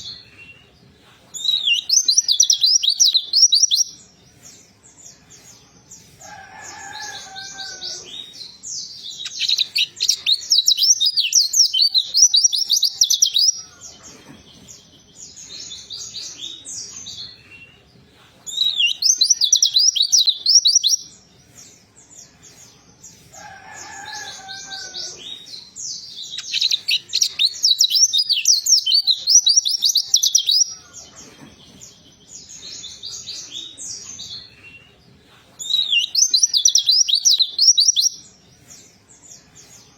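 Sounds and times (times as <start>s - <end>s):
bird twittering song: 0.0s - 35.0s, 35.6s - 39.9s
bird chirps: 1.4s - 4.0s, 7.8s - 17.8s, 18.5s - 21.1s, 23.9s - 35.0s, 35.6s - 38.3s.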